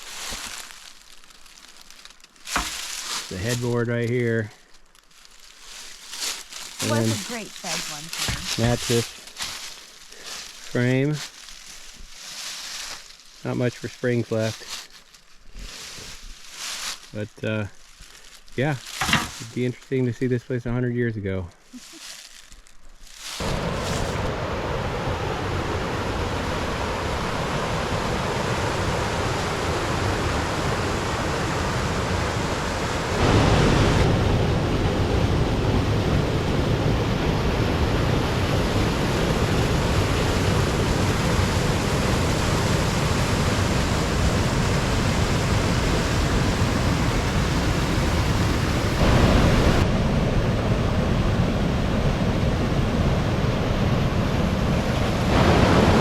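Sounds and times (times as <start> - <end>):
rushing water: 23.4 - 49.9, 51.6 - 56.0.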